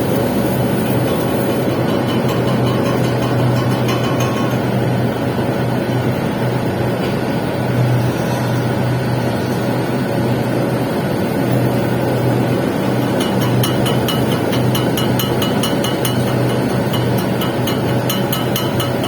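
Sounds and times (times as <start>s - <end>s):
welding arc crackling: 0.0s - 6.0s, 11.2s - 19.0s
low even hum: 0.0s - 19.0s.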